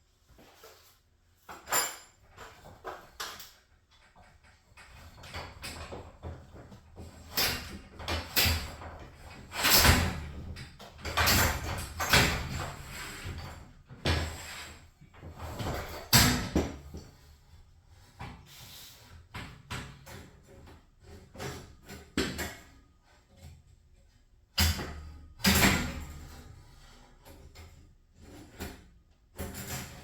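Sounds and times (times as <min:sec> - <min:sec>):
knocks and clanks on garage door: 0:04.1 - 0:14.5, 0:15.2 - 0:17.3, 0:24.5 - 0:30.0.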